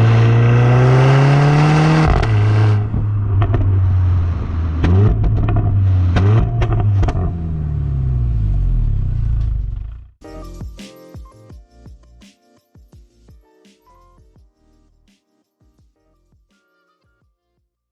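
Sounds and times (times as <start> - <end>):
car engine accelerating: 0.0 - 10.2
exhaust cracks: 0.0 - 10.2.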